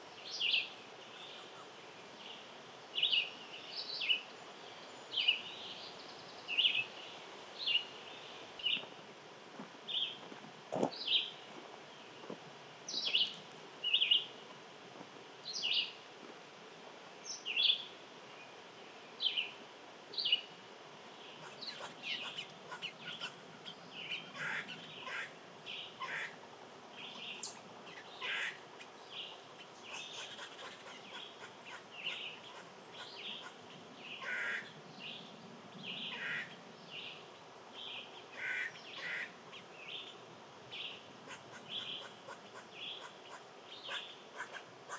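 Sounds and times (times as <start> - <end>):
faint background hiss: 0.0 - 44.9
small birds chirping: 9.9 - 14.6, 15.4 - 16.1, 17.2 - 44.9.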